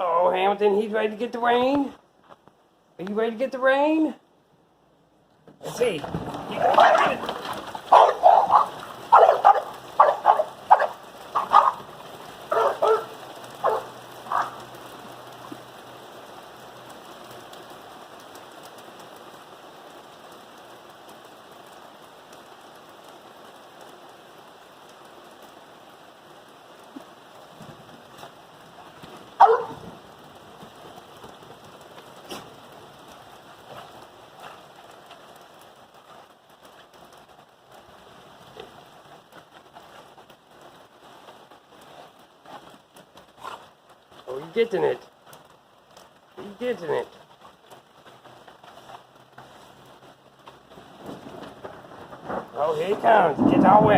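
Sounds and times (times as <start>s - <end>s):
steady rain: 0.0s - 53.9s
dog barking: 6.7s - 7.2s, 7.9s - 11.8s, 12.5s - 14.6s, 29.4s - 29.8s.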